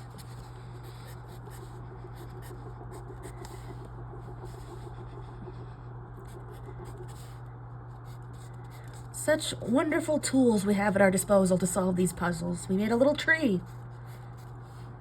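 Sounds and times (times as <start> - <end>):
pen scratching on paper: 0.0 - 9.4
low electrical hum: 0.0 - 15.0.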